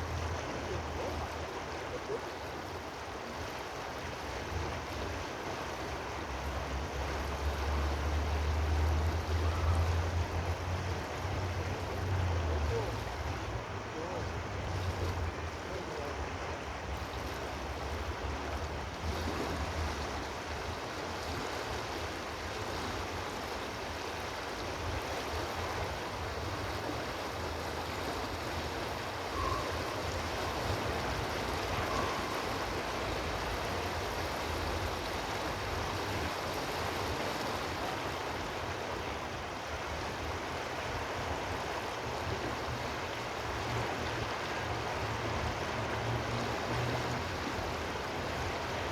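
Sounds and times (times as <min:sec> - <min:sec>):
stream of water flowing: 0:00.0 - 0:48.9
faint high notes: 0:29.3 - 0:30.7, 0:31.6 - 0:33.0.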